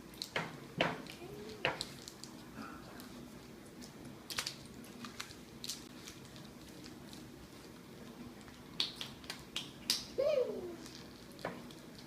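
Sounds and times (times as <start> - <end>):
wrapper crackling and tearing: 4.2 - 7.3.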